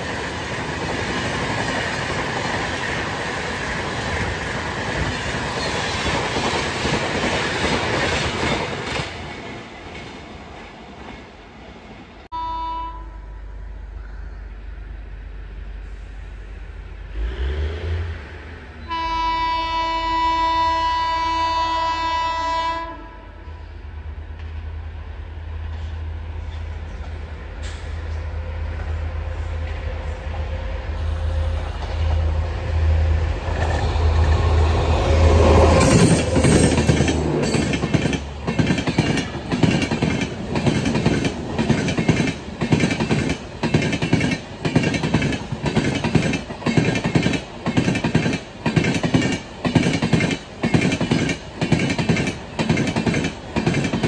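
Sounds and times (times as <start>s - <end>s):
train rumbling past: 0.0s - 54.0s
train horn: 12.3s - 13.6s, 18.8s - 23.8s.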